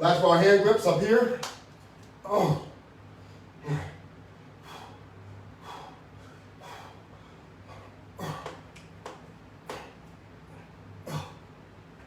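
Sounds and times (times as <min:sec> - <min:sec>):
steady low hum: 0:00.0 - 0:12.0
person breathing hard: 0:04.6 - 0:08.6.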